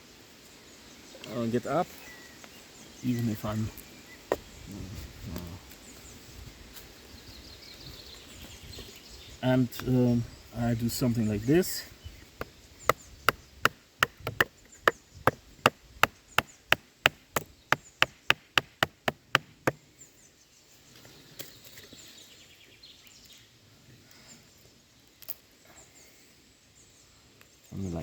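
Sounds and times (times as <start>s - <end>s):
faint bird chirps: 0.0s - 16.8s, 19.8s - 28.0s
knife chopping into wood: 12.4s - 14.5s, 15.3s - 19.8s.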